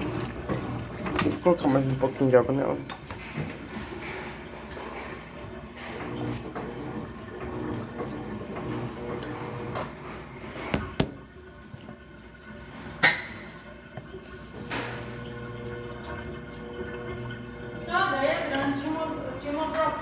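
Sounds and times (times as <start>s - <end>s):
water running into washing machine: 0.0s - 20.0s
sharp knocks: 10.7s - 11.2s.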